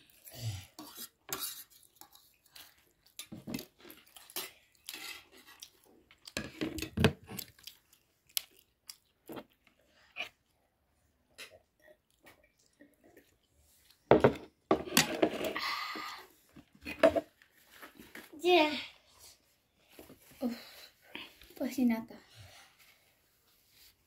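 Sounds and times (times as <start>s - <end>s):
chewing noodles: 0.0s - 10.7s, 11.3s - 14.1s.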